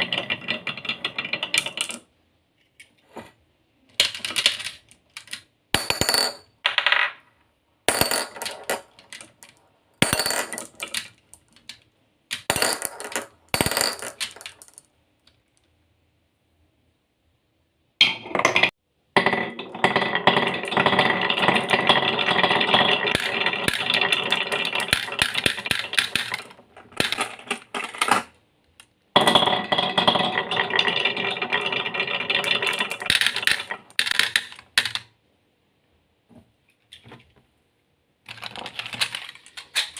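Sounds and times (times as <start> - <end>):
marbles rattling down a track: 19.6 - 28.0, 29.2 - 35.0.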